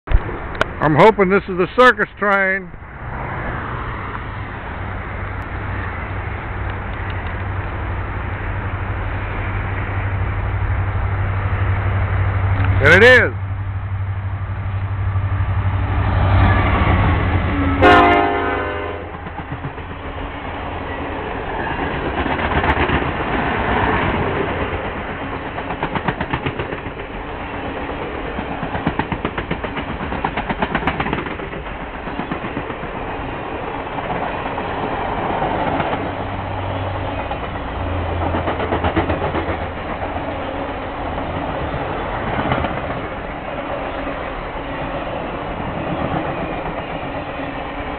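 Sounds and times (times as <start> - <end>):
diesel locomotive rumble: 0.0 - 47.9
train horn blast: 17.3 - 19.2
wheels clicking over rail joints: 21.3 - 47.4.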